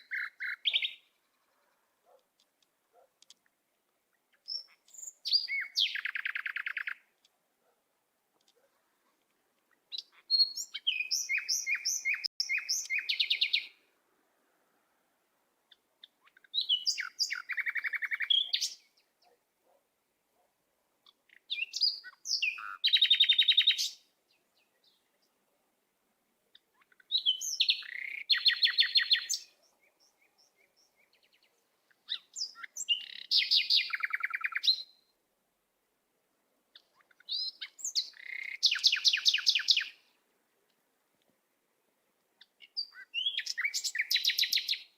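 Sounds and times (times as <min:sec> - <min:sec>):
songbird chirps and trills: 0:00.0 - 0:44.9.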